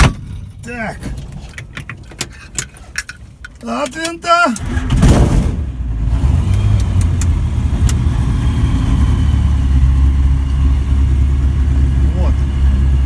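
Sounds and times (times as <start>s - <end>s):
light aircraft engine and propeller: 6.2s - 13.0s.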